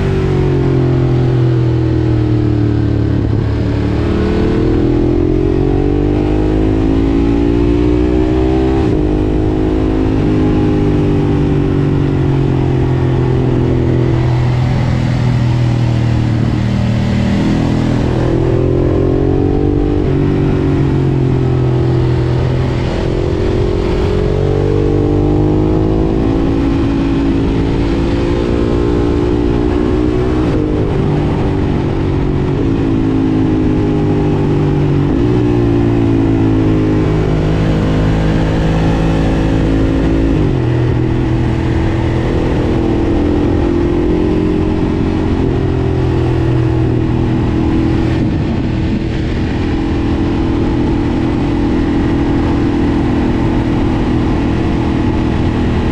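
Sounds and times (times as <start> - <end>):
motorcycle engine accelerating: 0.0 - 55.9.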